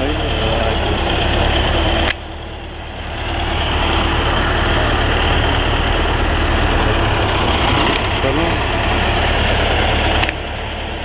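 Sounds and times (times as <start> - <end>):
machinery engine low rumble: 0.0 - 11.0.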